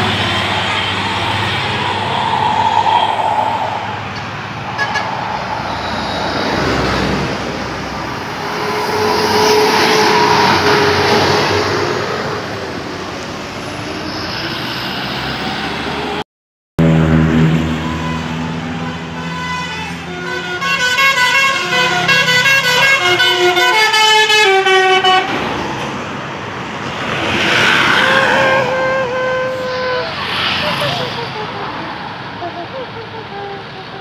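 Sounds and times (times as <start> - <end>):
road traffic noise: 0.0 - 16.2, 16.8 - 34.0
bus musical horn tune: 16.8 - 25.3, 28.1 - 30.2, 31.2 - 34.0.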